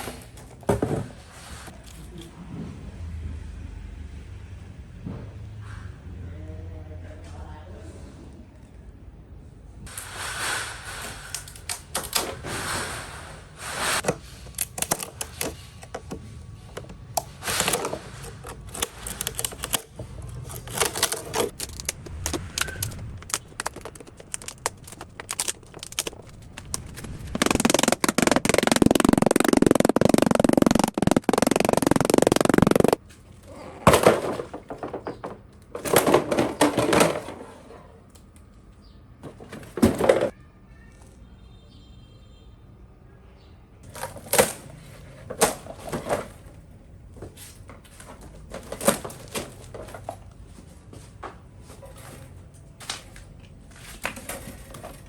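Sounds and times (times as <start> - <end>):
clicks taps and knocks: 21.4 - 33.0.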